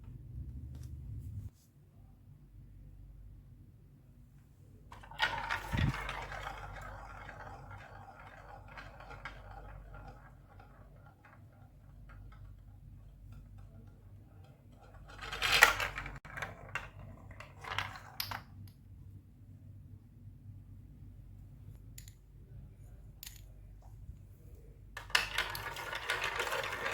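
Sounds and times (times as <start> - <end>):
marbles rolling on plastic track: 4.9 - 14.0, 14.6 - 18.4, 25.0 - 26.9.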